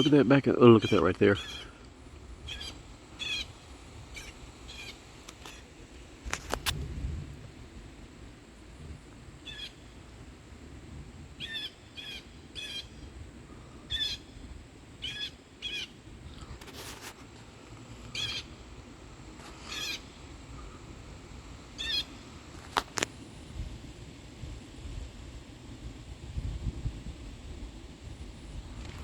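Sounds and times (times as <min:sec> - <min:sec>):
bird calling: 0:00.0 - 0:05.7, 0:09.4 - 0:10.0, 0:11.4 - 0:14.4, 0:15.0 - 0:17.0, 0:18.0 - 0:18.7, 0:19.4 - 0:20.9, 0:21.7 - 0:22.8.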